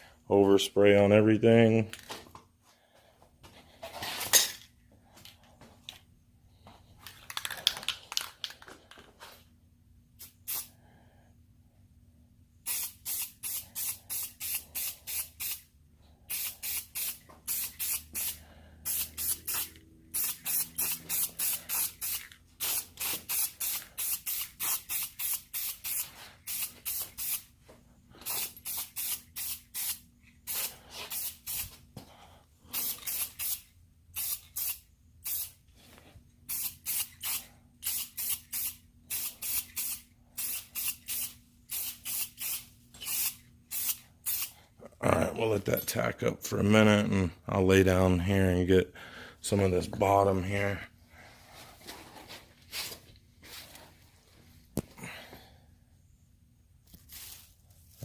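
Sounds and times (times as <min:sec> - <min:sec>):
spray paint can hissing: 0:10.2 - 0:10.7, 0:12.6 - 0:15.7, 0:16.3 - 0:27.5, 0:28.2 - 0:31.8, 0:32.7 - 0:35.6, 0:36.4 - 0:44.6.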